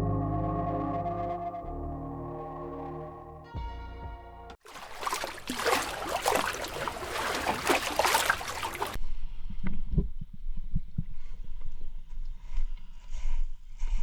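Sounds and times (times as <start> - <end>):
water splashing and sloshing: 4.6 - 9.0
dull underwater knocks: 4.7 - 9.0.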